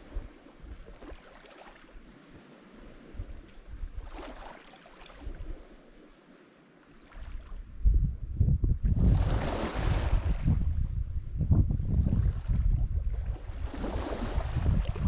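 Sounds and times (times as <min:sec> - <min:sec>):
wind buffeting microphone: 0:00.0 - 0:01.2, 0:02.7 - 0:04.4, 0:05.2 - 0:05.8, 0:07.3 - 0:15.0
waves washing on shore: 0:00.0 - 0:07.6, 0:09.0 - 0:10.7, 0:12.2 - 0:15.0.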